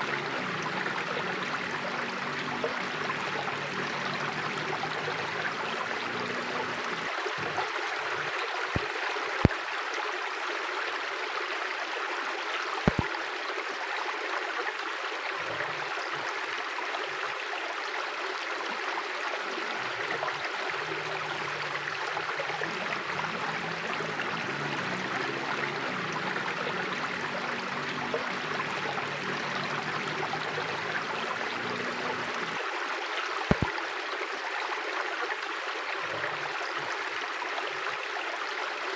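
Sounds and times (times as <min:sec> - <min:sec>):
river water rushing: 0:00.0 - 0:09.6, 0:14.9 - 0:38.9
sharp clicks: 0:12.9 - 0:13.1, 0:33.5 - 0:33.7.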